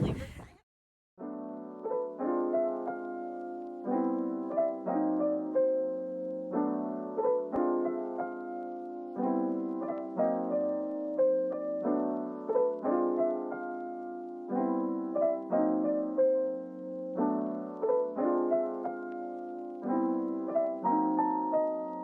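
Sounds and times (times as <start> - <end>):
soft piano tune: 1.2 - 22.0.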